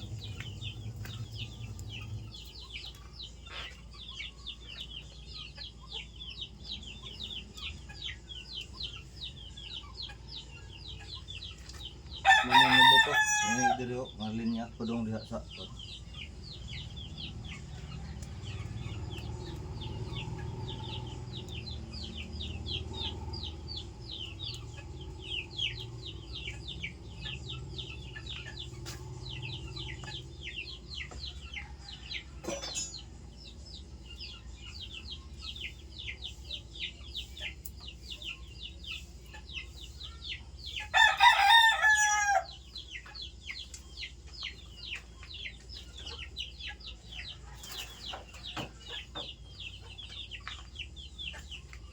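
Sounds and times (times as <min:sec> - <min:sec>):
chicks peeping: 0:00.0 - 0:51.9
rooster crowing: 0:12.2 - 0:13.9, 0:40.9 - 0:42.6.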